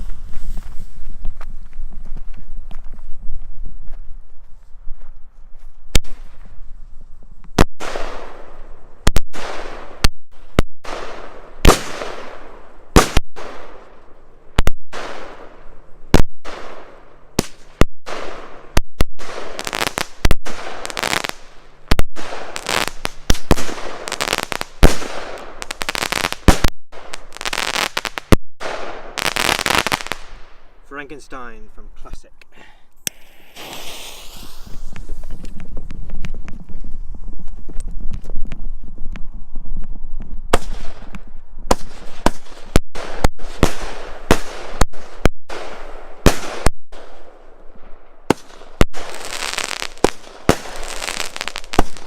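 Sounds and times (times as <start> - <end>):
firework bangs: 7.5 - 13.9, 14.9 - 30.6, 33.0 - 36.4, 40.5 - 47.2, 48.3 - 52.0.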